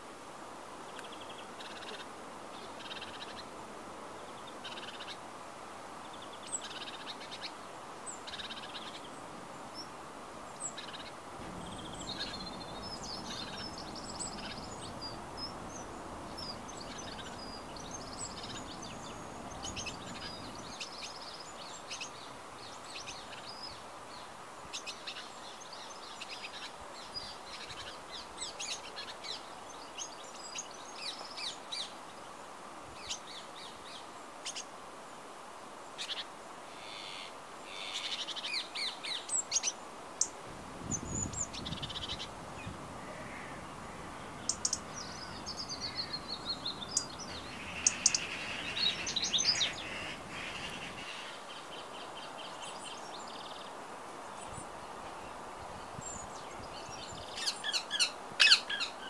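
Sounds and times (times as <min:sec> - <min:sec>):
steady background noise: 0:00.0 - 0:59.0
birds chirping and calling: 0:10.6 - 0:22.3, 0:40.9 - 0:52.8, 0:56.0 - 0:59.0.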